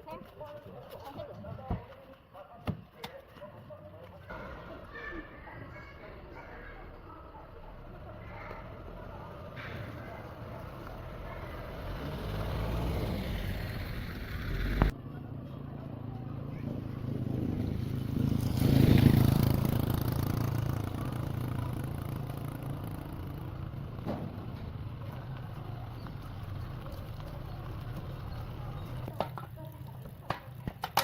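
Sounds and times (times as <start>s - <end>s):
road noise: 0.0s - 31.0s
car engine running: 6.8s - 14.9s, 21.2s - 29.1s.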